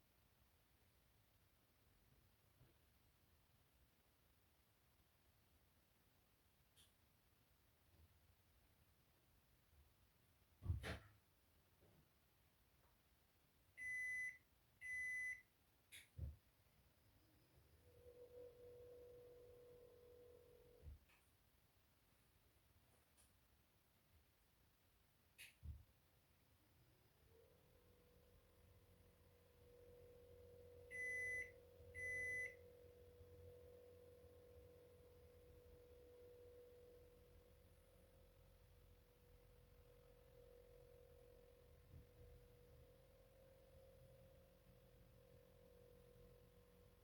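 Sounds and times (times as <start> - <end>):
washing machine beeps: 13.8 - 15.5, 30.2 - 32.8
low steady hum: 16.8 - 23.0, 26.4 - 47.0.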